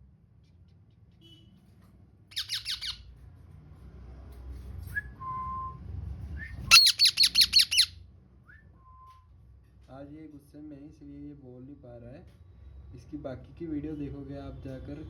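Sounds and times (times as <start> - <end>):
parrot screeches: 2.3 - 3.0, 6.7 - 7.9
parrot squawking: 2.3 - 3.0, 6.7 - 7.9
parrot whistles: 2.4 - 3.0, 6.4 - 7.9.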